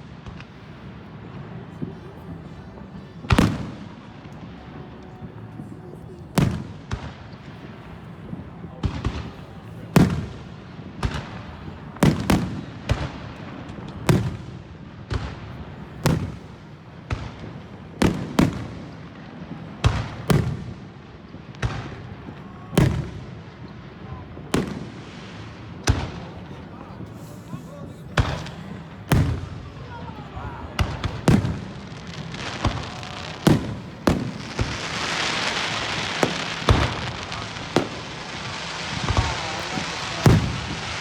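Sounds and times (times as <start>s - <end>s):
fireworks bangs: 0.0s - 41.0s.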